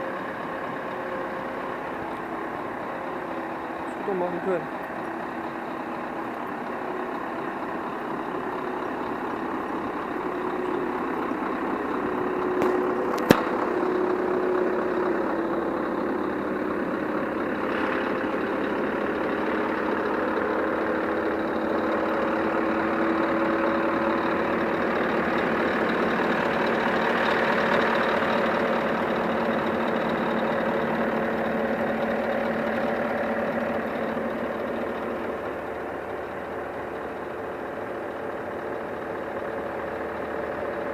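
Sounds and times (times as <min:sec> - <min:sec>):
diesel truck engine running: 0:00.0 - 0:40.9
sharp click: 0:12.6 - 0:13.7.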